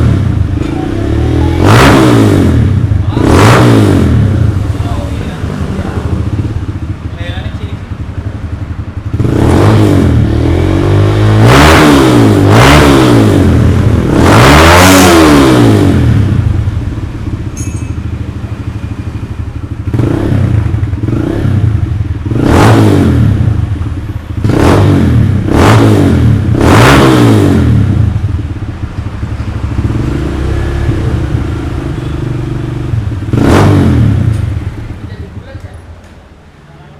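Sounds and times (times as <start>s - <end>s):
motorcycle engine idling and revving: 0.0s - 36.9s.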